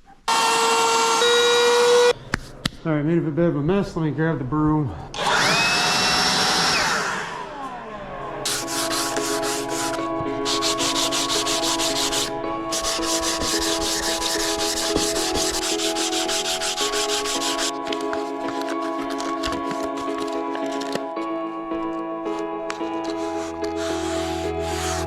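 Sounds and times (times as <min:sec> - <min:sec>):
power tool spinning down: 0:00.3 - 0:02.1, 0:05.2 - 0:07.8
background music: 0:07.5 - 0:25.0
broom sweeping wood shavings: 0:08.5 - 0:19.0, 0:22.9 - 0:25.0.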